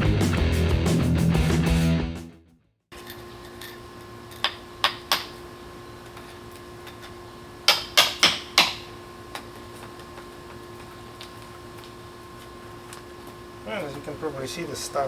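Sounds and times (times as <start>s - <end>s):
sledgehammer striking chisel: 7.7s - 8.9s.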